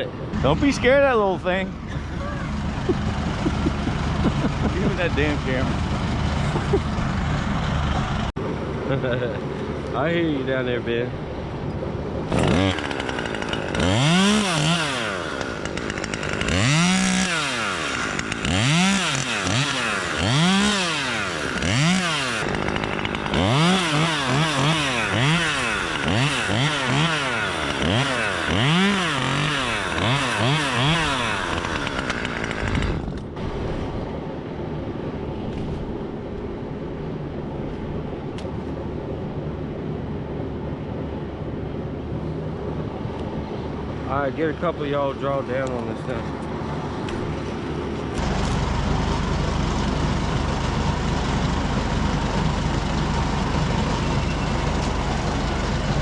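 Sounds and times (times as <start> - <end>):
chainsaw revving: 1.8 - 8.2, 12.3 - 33.1, 48.2 - 56.0.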